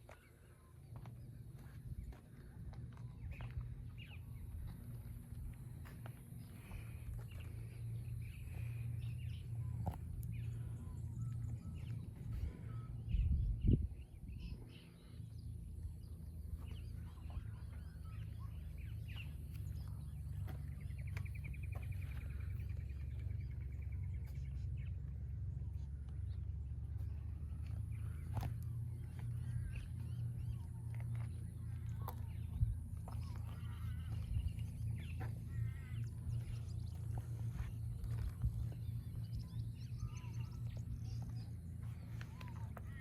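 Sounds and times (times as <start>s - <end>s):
birds chirping and trilling: 0.0s - 43.0s
steady low hum: 0.0s - 43.0s.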